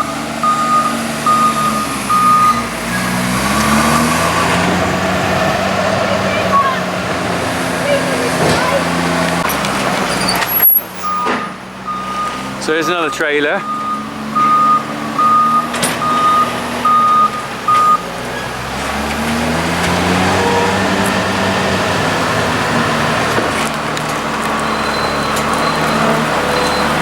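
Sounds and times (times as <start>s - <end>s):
reversing alarm beeps: 0.0s - 2.7s, 11.0s - 18.0s, 24.6s - 27.0s
heavy diesel engine running: 0.0s - 27.0s.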